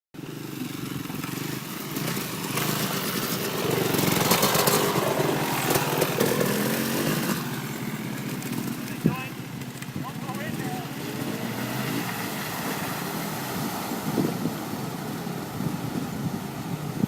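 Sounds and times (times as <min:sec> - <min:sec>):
off-road vehicle engine revving: 0:00.2 - 0:17.0
loud rushing noise: 0:02.0 - 0:09.4.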